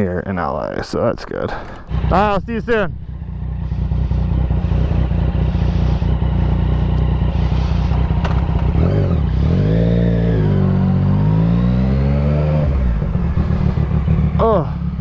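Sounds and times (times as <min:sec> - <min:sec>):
light engine ticking: 0:01.5 - 0:09.5
motorcycle engine revving: 0:01.5 - 0:15.0.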